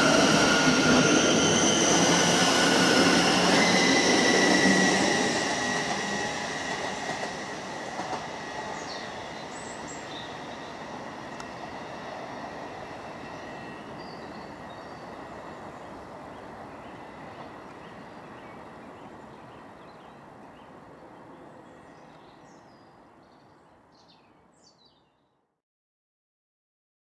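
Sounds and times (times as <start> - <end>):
electric train rumble: 0.0 - 19.5.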